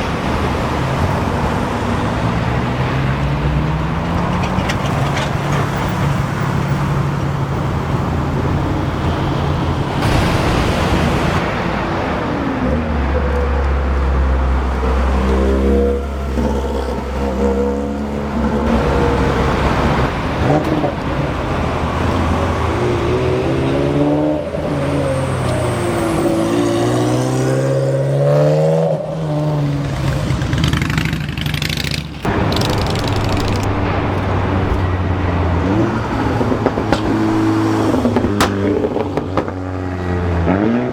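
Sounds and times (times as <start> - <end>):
low engine drone: 0.0 - 26.3, 32.1 - 40.5
sports car engines revving: 0.0 - 40.9
traffic noise: 0.0 - 40.9.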